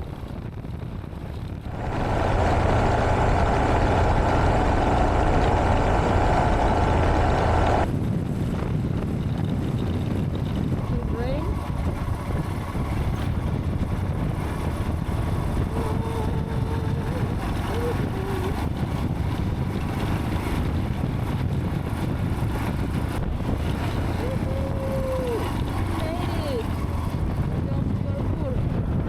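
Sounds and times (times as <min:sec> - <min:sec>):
wind buffeting microphone: 0:00.0 - 0:29.0
motorcycle engine running: 0:01.6 - 0:07.9, 0:25.2 - 0:28.7.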